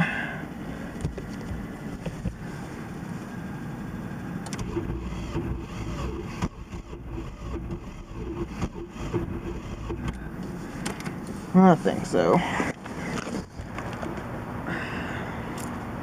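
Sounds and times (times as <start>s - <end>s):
steady low hum: 0.0s - 16.0s
vehicle engine: 0.0s - 16.0s.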